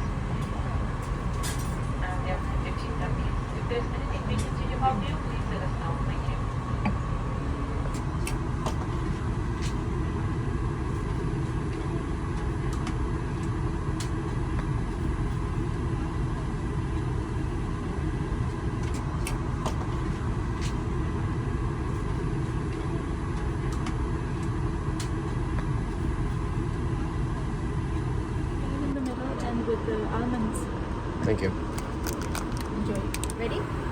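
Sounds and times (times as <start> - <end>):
air-conditioning hum: 0.0 - 33.9
airplane cabin rumble: 0.0 - 33.9.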